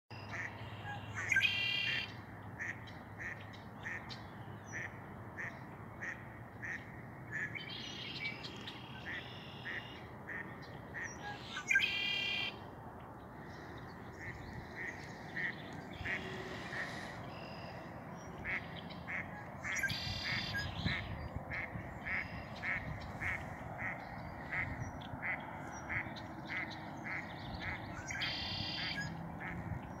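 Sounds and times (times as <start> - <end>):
harsh buzzy bird song: 0.1 - 12.6, 13.2 - 30.0
birds calling short sharp notes: 13.4 - 30.0.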